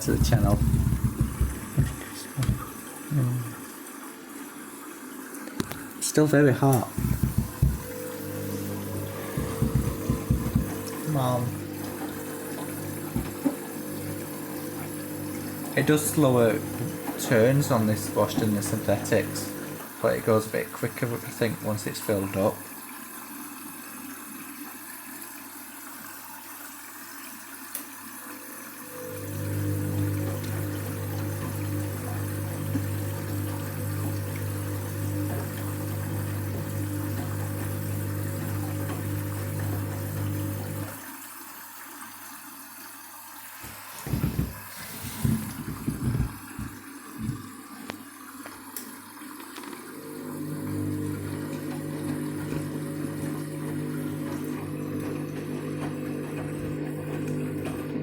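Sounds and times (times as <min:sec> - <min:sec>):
water sloshing in drum: 0:00.0 - 0:02.9, 0:06.9 - 0:19.9, 0:43.6 - 0:48.6, 0:50.7 - 0:58.0
water running into washing machine: 0:00.0 - 0:58.0.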